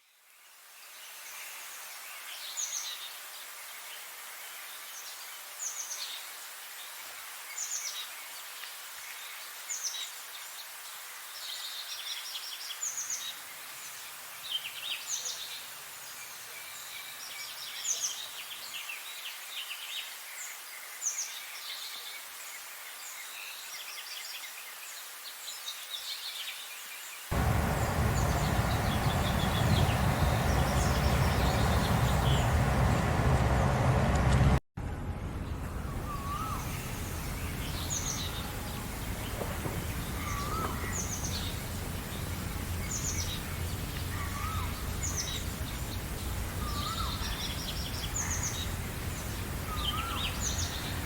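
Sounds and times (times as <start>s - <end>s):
background hiss: 0.0s - 34.6s, 35.4s - 51.0s
birds singing: 27.3s - 34.6s, 35.8s - 51.0s
birds trilling: 27.3s - 34.6s, 35.8s - 51.0s.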